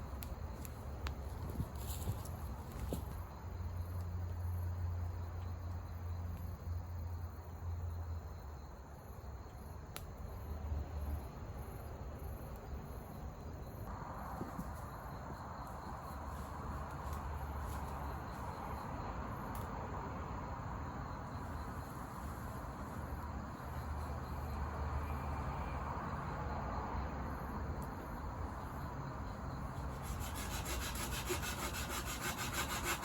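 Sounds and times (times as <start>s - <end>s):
crickets chirping: 0.0s - 33.0s.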